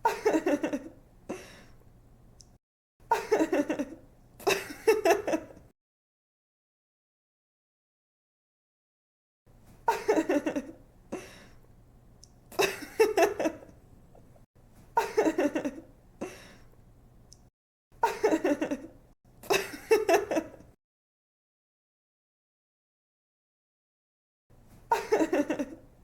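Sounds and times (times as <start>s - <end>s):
woman laughing: 0.0s - 1.0s, 3.1s - 5.6s, 9.9s - 10.8s, 12.6s - 13.7s, 15.0s - 15.8s, 18.0s - 18.9s, 19.5s - 20.7s, 24.9s - 25.8s.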